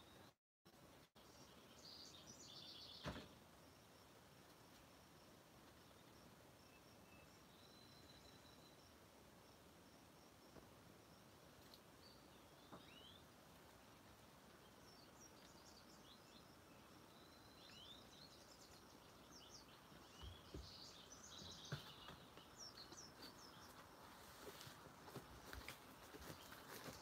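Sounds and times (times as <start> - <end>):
songbirds chirping: 0.0 - 27.0
rustling through plants: 23.0 - 27.0.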